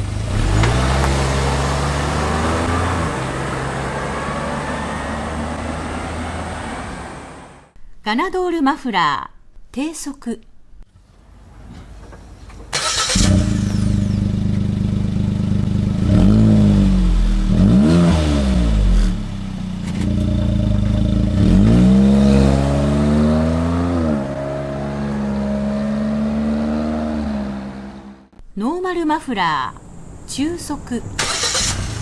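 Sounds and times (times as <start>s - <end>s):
car engine revving: 0.0s - 7.8s, 12.8s - 28.4s.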